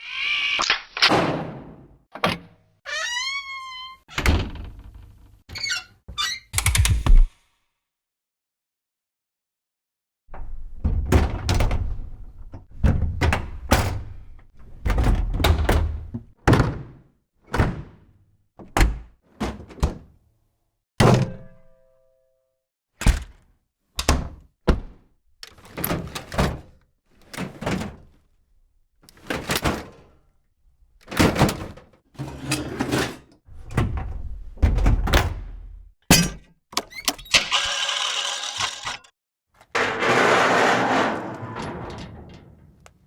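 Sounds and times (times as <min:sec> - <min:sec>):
rushing scraping noise: 0:39.8 - 0:41.9.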